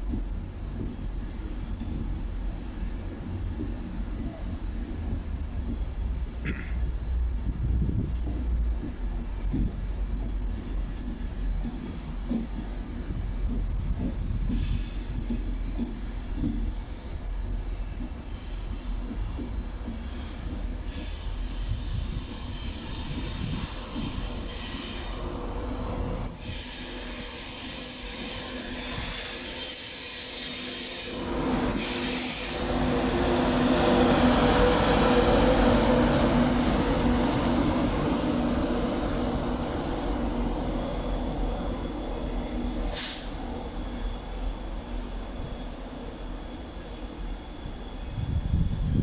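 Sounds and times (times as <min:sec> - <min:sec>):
train passing: 0:00.0 - 0:49.0.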